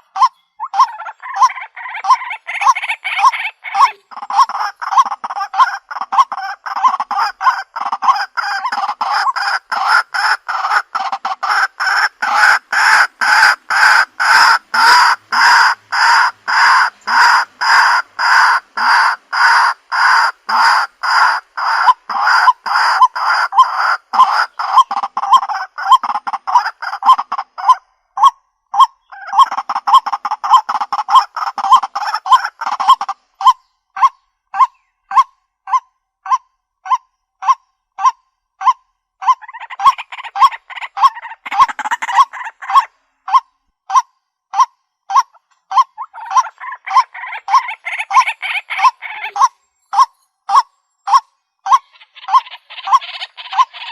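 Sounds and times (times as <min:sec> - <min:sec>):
bird harsh repeated calls: 0:00.0 - 0:53.9.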